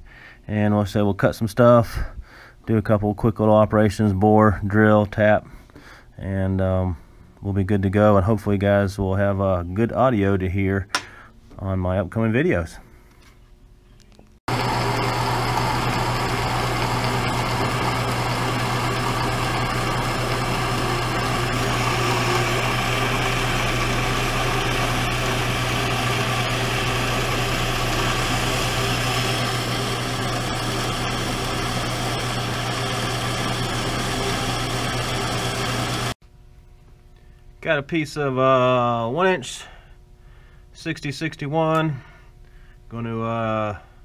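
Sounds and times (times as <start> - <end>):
shop machine humming: 14.5 - 36.2.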